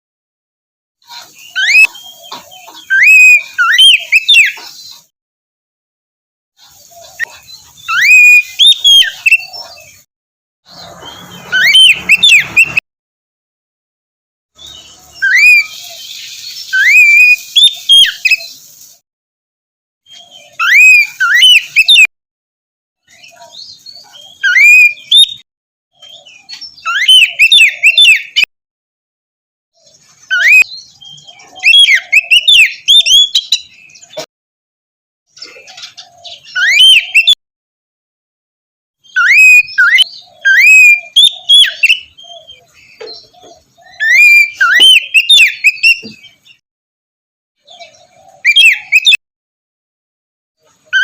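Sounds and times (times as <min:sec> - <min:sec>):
bird singing whistled phrases: 0:01.4 - 0:04.6, 0:07.1 - 0:09.7, 0:10.7 - 0:12.8, 0:14.6 - 0:18.6, 0:20.1 - 0:22.1, 0:23.1 - 0:25.4, 0:26.0 - 0:28.5, 0:30.3 - 0:34.1, 0:36.3 - 0:37.4, 0:39.0 - 0:46.4, 0:47.7 - 0:49.2.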